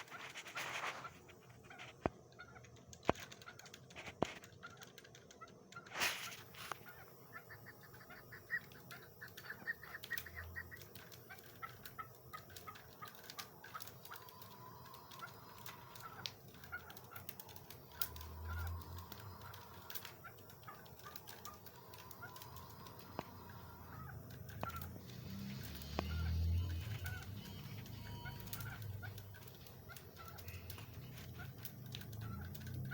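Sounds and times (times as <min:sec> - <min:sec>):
partridge calling: 0:00.0 - 0:32.9
sharp clicks: 0:01.0 - 0:32.9.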